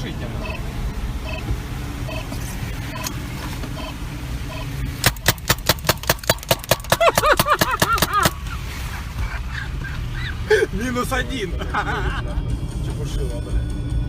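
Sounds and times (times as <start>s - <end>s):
car engine and road noise: 0.0s - 14.0s
detector beeps and chirps: 2.1s - 2.3s.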